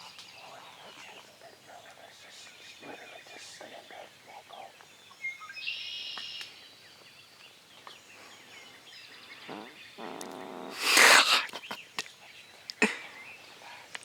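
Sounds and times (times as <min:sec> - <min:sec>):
bird chirps: 0:00.0 - 0:10.2
bird trilling song: 0:00.0 - 0:10.4
songbirds singing: 0:00.0 - 0:14.0.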